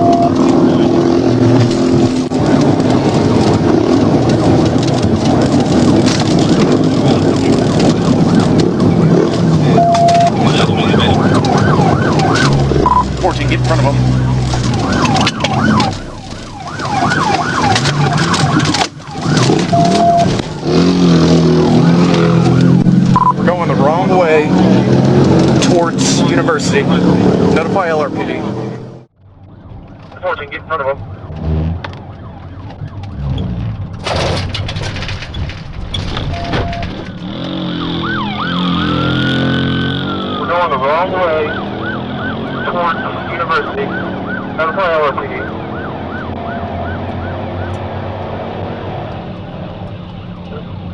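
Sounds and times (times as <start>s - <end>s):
police siren yelp: 0.0s - 25.0s, 29.4s - 33.4s, 37.6s - 48.1s, 49.0s - 50.9s
car engine: 0.0s - 50.9s
short steady beep: 12.8s - 13.1s, 19.8s - 20.3s, 23.2s - 23.4s.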